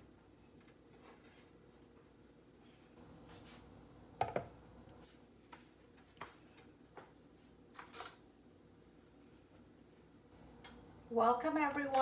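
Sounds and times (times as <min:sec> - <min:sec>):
faint steady hum: 0:01.9 - 0:05.3, 0:08.6 - 0:12.0.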